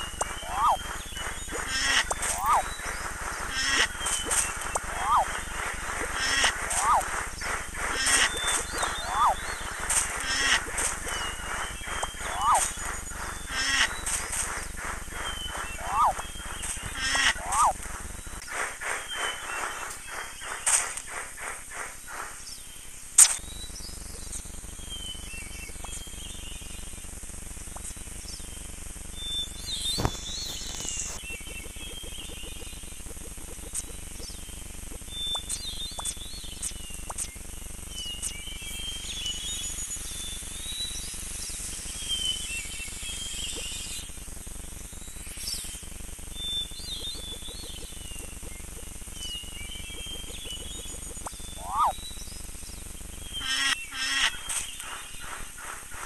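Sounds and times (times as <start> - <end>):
birds chirping: 0.0 - 27.0, 29.2 - 40.1, 46.4 - 56.0
steady background ambience: 0.0 - 56.0
sharp click: 23.2 - 23.4.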